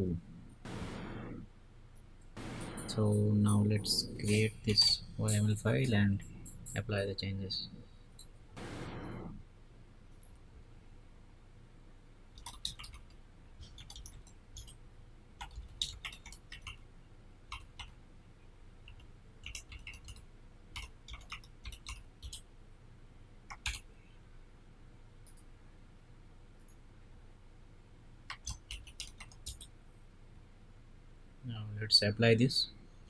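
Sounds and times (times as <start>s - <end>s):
keyboard and mouse clicks: 12.4s - 14.8s, 15.4s - 16.8s, 18.9s - 20.2s, 20.8s - 22.4s, 23.5s - 23.9s, 28.3s - 29.7s.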